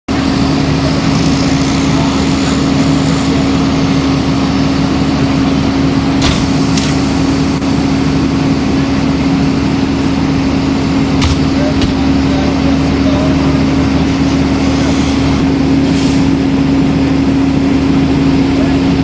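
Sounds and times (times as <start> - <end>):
engine humming: 0.1 - 19.0.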